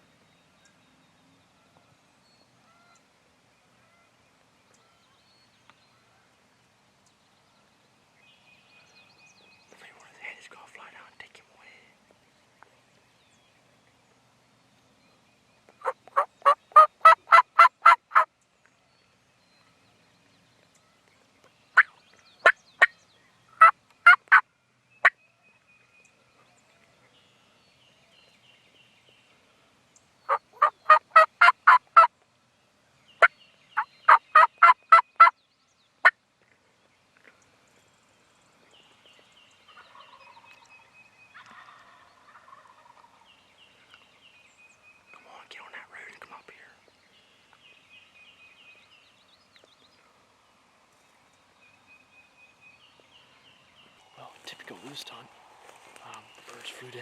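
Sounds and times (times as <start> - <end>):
faint rustle: 1.6 - 16.2, 49.0 - 52.1, 52.8 - 57.0
turkey yelping: 15.8 - 18.3, 23.6 - 24.4, 30.3 - 32.1, 33.8 - 35.3.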